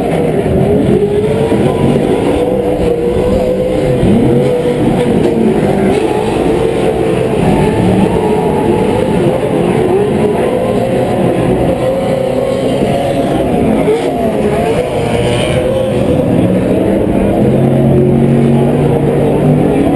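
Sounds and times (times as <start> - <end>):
race truck engines revving: 0.0 - 19.9.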